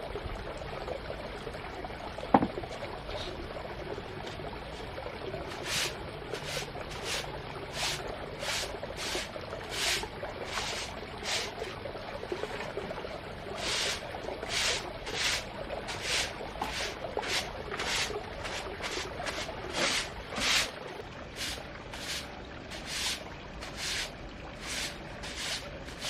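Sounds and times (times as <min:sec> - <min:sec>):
short swishing strokes: 0:05.6 - 0:11.6, 0:13.6 - 0:20.7.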